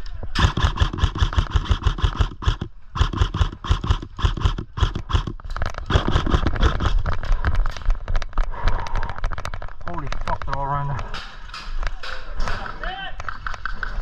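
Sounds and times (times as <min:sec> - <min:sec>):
airsoft guns firing full-auto: 0:00.4 - 0:07.1.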